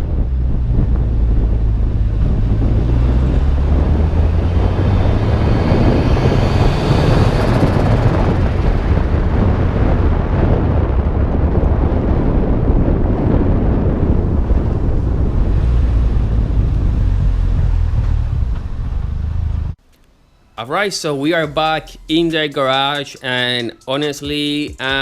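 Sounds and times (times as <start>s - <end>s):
car engine cruising: 0.0s - 11.1s, 12.9s - 22.8s
wind noise on microphone: 0.0s - 19.8s
faint high whine: 19.0s - 23.6s.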